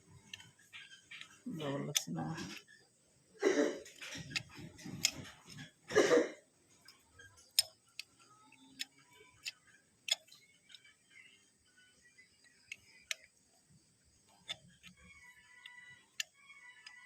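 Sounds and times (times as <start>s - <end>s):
small hard parts clicking: 3.8s - 5.8s, 6.8s - 10.9s, 12.4s - 17.0s.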